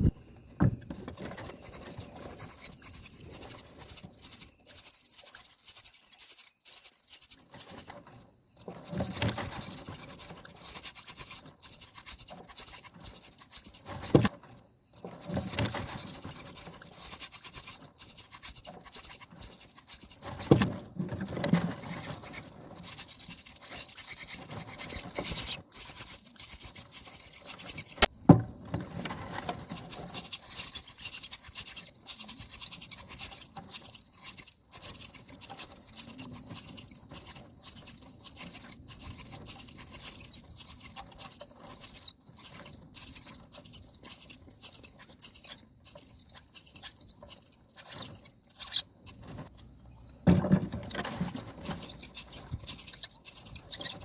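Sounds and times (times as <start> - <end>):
nestlings begging calls: 0.8 - 28.1, 28.9 - 54.0.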